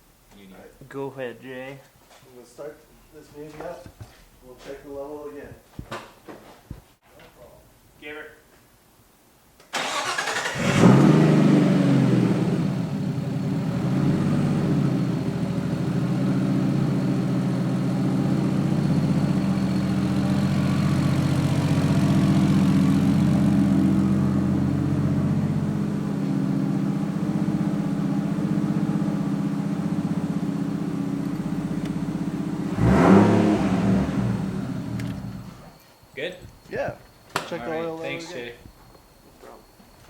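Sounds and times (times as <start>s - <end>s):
engine cranking on starter: 9.7s - 11.7s
car engine idling: 9.8s - 35.6s.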